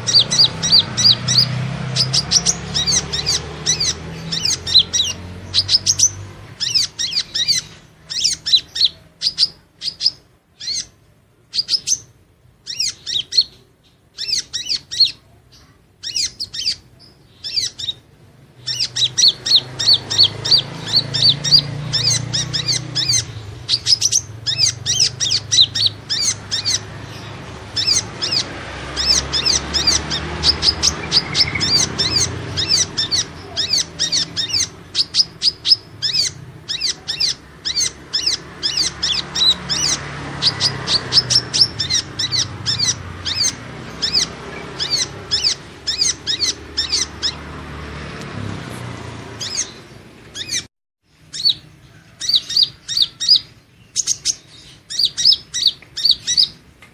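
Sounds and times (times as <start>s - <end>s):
sunbird high thin chirps: 18.6s - 47.4s.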